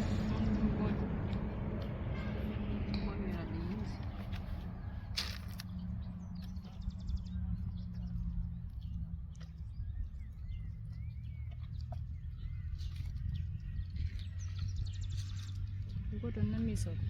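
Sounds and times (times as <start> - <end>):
steady low rumble: 0.0 - 17.0
bird chirps: 5.6 - 16.0.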